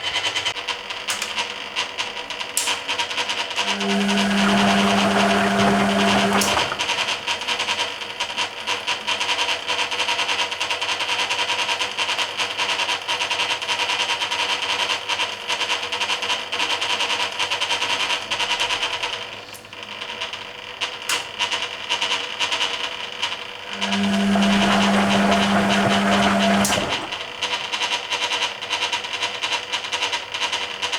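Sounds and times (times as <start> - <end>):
washing machine drum churning: 3.6 - 7.8, 23.5 - 27.8.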